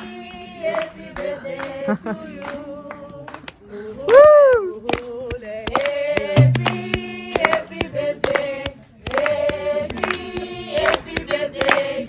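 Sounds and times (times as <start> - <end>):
group singing unaccompanied: 0.0 - 4.0, 4.8 - 12.0
hand clapping: 2.4 - 12.0.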